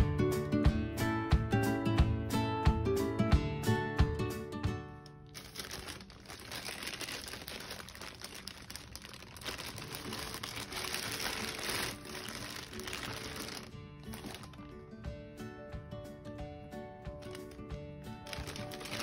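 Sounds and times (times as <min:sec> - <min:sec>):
plastic bag crinkling: 0:05.2 - 0:14.8, 0:17.2 - 0:17.6, 0:18.2 - 0:19.0.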